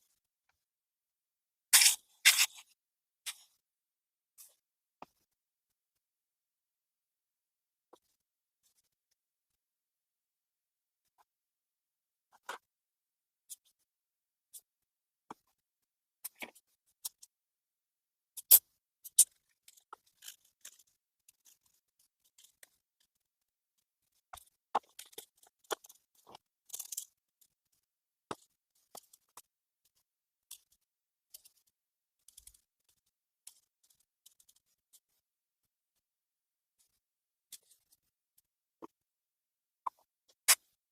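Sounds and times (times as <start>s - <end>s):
small parts and tools clicking: 1.8s - 2.7s, 18.4s - 23.2s, 24.1s - 35.2s, 36.8s - 38.5s.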